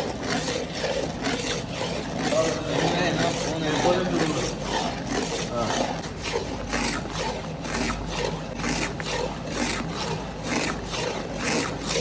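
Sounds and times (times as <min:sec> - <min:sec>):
rhythmic scraping strokes: 0:00.0 - 0:06.5.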